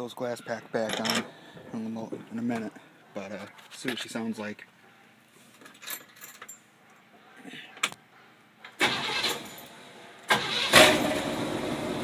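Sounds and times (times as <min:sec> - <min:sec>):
loud car engine starting and idling: 0:08.8 - 0:09.5, 0:10.3 - 0:12.0.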